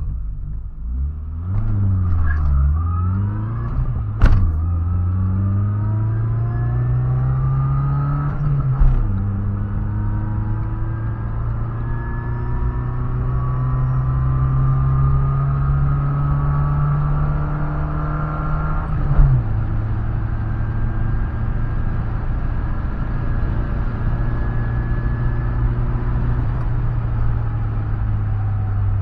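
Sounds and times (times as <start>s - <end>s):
car engine accelerating: 0.0s - 29.0s
gear shift thump: 3.7s - 4.8s.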